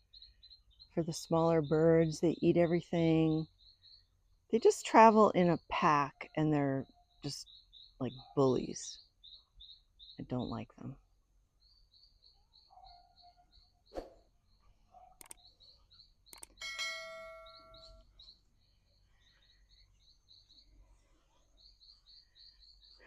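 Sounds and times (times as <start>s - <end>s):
faint high chirping: 0.0s - 4.2s, 6.1s - 23.0s
metallic bell chime: 16.6s - 18.0s.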